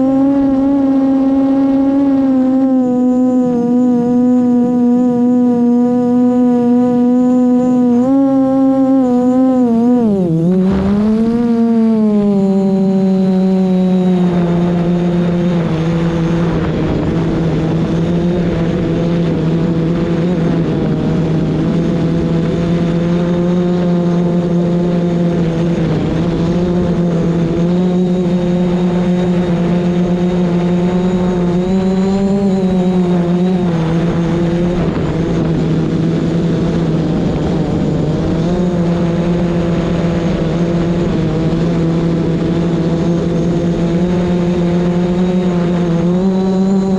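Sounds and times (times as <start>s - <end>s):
drone propellers humming: 0.0s - 46.9s
wind noise rushing: 10.3s - 12.6s, 14.2s - 45.4s.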